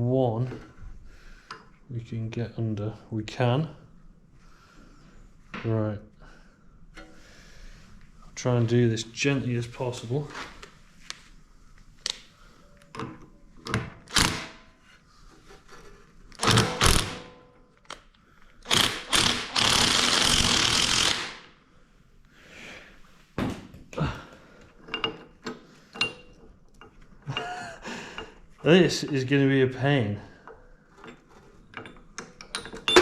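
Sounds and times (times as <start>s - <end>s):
metal tool knocks and clunks: 31.0s - 33.0s.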